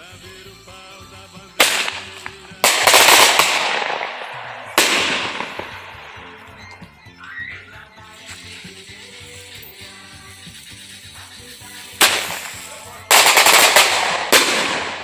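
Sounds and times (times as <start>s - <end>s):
background music: 0.0s - 15.0s
loud bangs: 1.6s - 6.6s, 12.0s - 15.0s.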